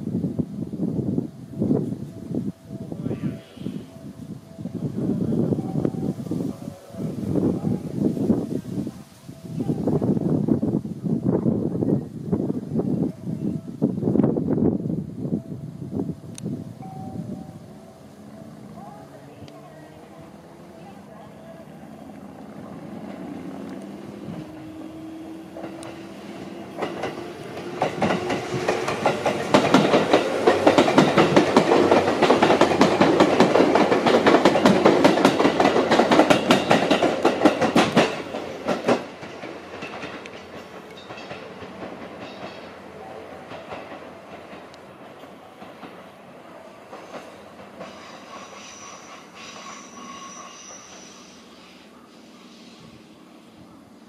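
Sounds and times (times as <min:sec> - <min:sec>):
electric train motor hum: 0:13.6 - 0:36.1
train wheels clacking over rail joints: 0:22.1 - 0:42.8, 0:43.4 - 0:46.1, 0:46.7 - 0:51.3.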